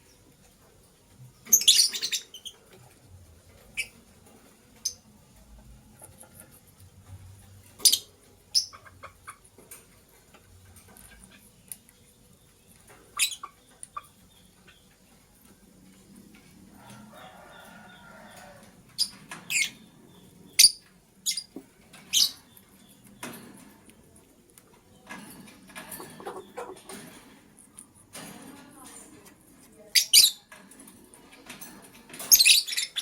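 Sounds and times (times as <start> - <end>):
lovebirds chirping: 1.4 - 2.7, 7.7 - 9.4, 10.9 - 16.5, 17.2 - 25.1, 32.3 - 33.0.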